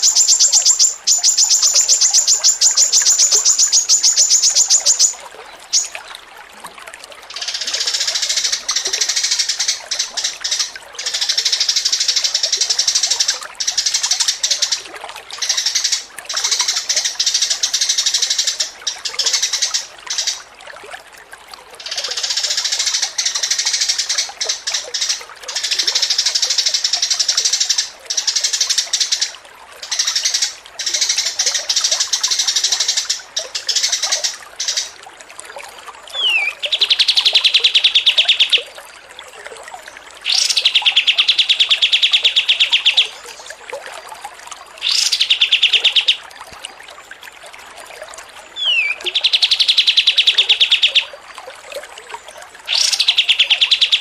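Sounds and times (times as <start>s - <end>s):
bird trill: 0.0s - 5.9s, 36.2s - 38.7s, 40.3s - 43.4s, 44.8s - 46.2s, 48.6s - 51.1s, 52.7s - 54.0s
songbird chattering: 0.0s - 5.9s, 36.2s - 38.7s, 40.2s - 43.4s, 44.8s - 46.2s, 48.6s - 51.1s, 52.7s - 54.0s.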